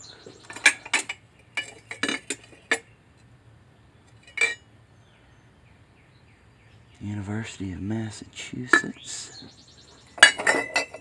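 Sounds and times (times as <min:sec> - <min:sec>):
dishware clinking: 0:00.5 - 0:02.8, 0:04.2 - 0:04.6, 0:08.7 - 0:09.0, 0:10.2 - 0:11.0.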